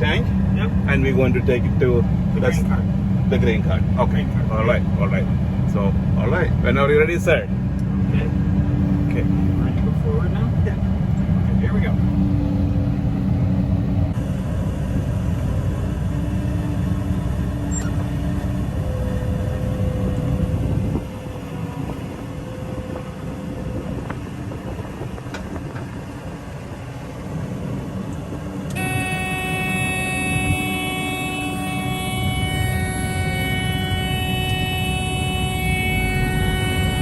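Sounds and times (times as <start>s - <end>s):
harvester engine drone: 0.0s - 37.0s
high warning tones: 28.7s - 37.0s.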